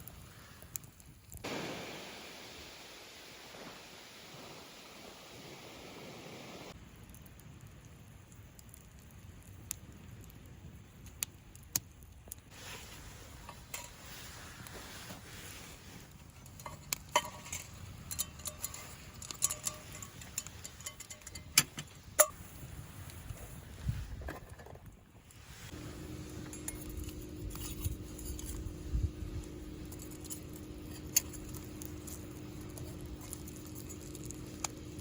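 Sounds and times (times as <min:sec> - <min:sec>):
fire crackling and popping: 0:00.0 - 0:35.0
metal cookware clinking: 0:16.4 - 0:22.4, 0:26.2 - 0:35.0
low steady rumble: 0:25.3 - 0:35.0.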